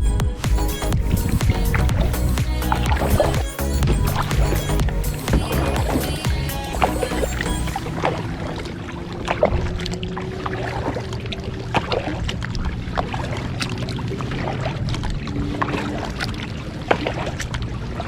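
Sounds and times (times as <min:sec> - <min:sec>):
low rumble: 0:00.0 - 0:13.0
steady water noise: 0:00.0 - 0:18.0
paddle splashing in water: 0:02.8 - 0:18.0.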